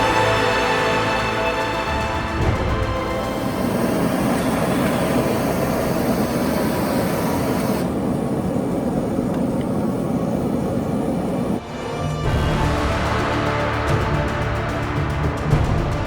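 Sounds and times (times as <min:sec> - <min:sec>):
high hiss: 0:00.0 - 0:11.6.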